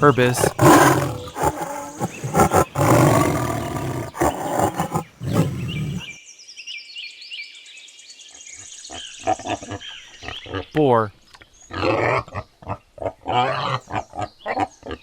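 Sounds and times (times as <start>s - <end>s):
ibis harsh calls: 0.0s - 6.2s.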